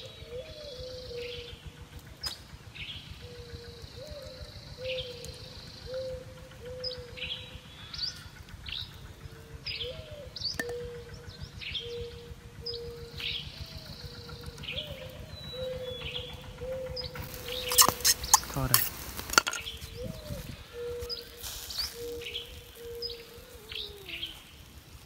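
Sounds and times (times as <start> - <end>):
short low bird notes: 9.7 - 24.4.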